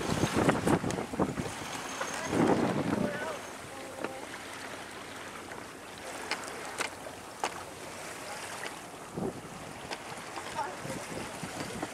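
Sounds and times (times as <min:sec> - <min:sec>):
water noise: 0:00.0 - 0:11.9
wind: 0:00.0 - 0:11.9.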